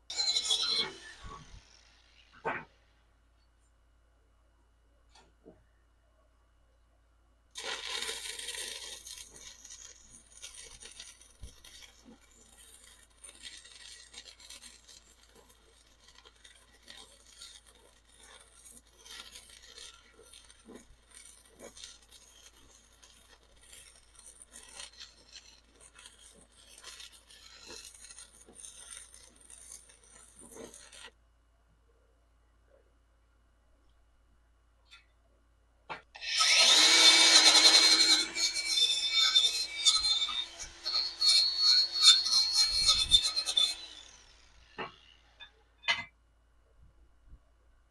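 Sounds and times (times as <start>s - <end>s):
welding arc crackling: 7.6s - 31.1s, 36.2s - 45.2s.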